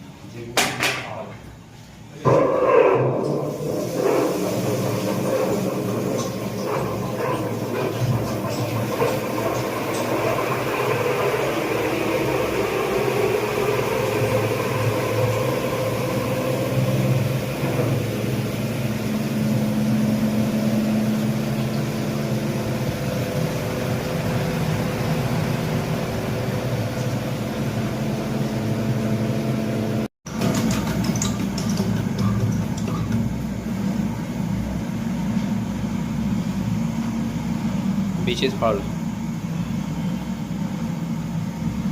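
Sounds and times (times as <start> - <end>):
engine humming: 5.3 - 30.1.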